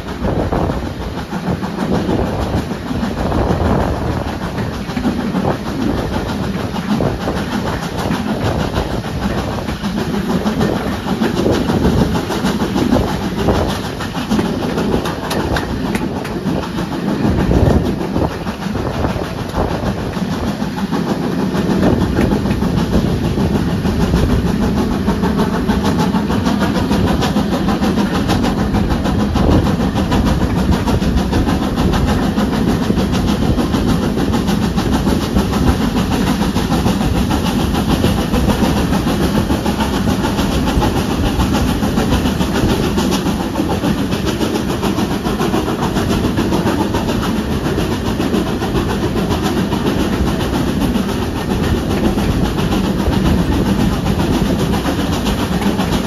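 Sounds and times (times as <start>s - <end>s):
clattering over track: 0.0s - 56.0s
train wheels on rails: 0.0s - 56.0s.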